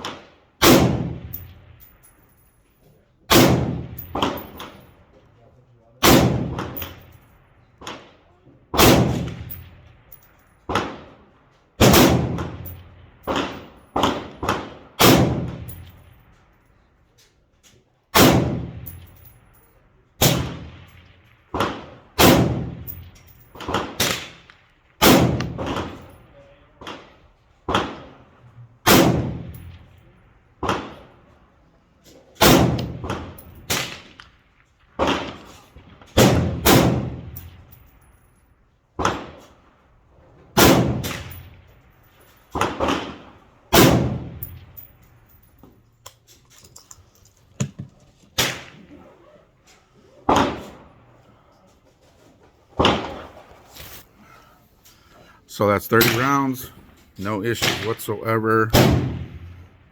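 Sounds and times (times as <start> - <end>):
rifle shots with echo: 0.0 - 2.2, 3.2 - 5.2, 6.0 - 16.6, 18.1 - 19.6, 20.2 - 31.5, 32.4 - 38.0, 39.0 - 39.8, 40.5 - 45.6, 50.3 - 51.1, 52.8 - 53.4, 55.9 - 59.9.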